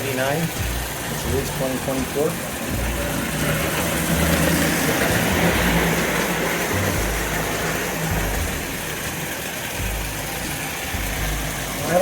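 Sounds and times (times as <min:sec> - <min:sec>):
train wheel noise: 0:00.0 - 0:12.0
toy train motor whir: 0:02.7 - 0:11.8.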